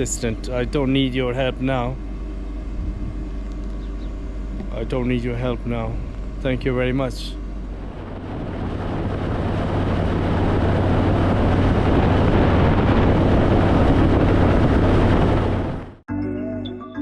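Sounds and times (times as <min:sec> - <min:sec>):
motorcycle engine running: 0:00.0 - 0:16.0
rush of riding wind: 0:02.0 - 0:04.8, 0:07.4 - 0:16.0
music: 0:16.1 - 0:17.0.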